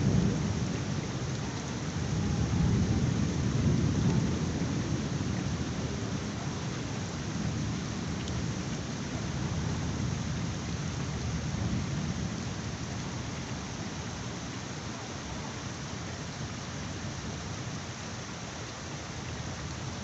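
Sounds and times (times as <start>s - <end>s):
low rumble of thunder: 0.0s - 13.8s
heavy rain falling: 0.0s - 20.0s.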